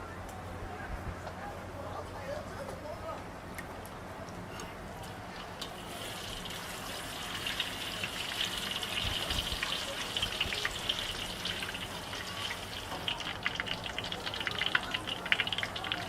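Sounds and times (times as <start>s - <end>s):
food sizzling in hot oil: 5.4s - 16.0s.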